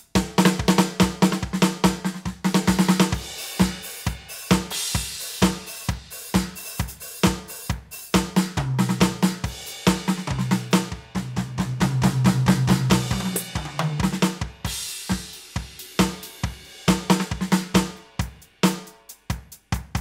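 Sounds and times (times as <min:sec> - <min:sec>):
electronic drum kit groove: 0:00.0 - 0:20.0.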